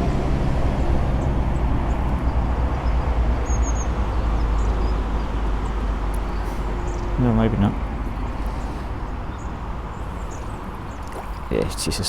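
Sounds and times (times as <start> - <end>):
low outdoor rumble: 0.0 - 12.0
high bird chirps: 2.8 - 11.4.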